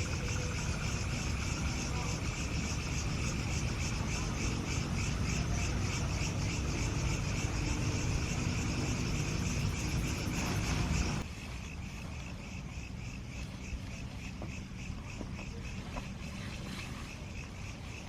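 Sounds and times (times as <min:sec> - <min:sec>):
low rumbling noise: 0:00.0 - 0:12.2
insects chirping: 0:00.0 - 0:18.0.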